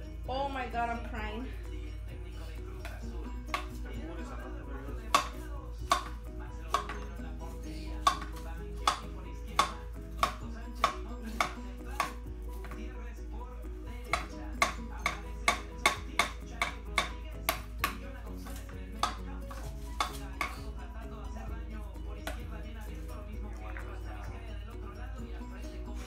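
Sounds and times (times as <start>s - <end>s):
knife chopping on stone board: 5.0s - 7.1s, 8.0s - 12.8s, 14.1s - 20.6s.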